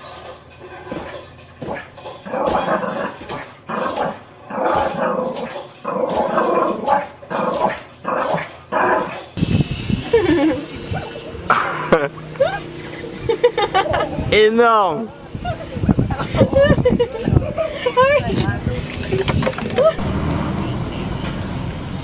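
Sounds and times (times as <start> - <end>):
dog vocalizing: 0.6 - 14.4, 15.0 - 20.0
steady hiss: 9.4 - 20.0
gliding squeaks: 10.2 - 20.0.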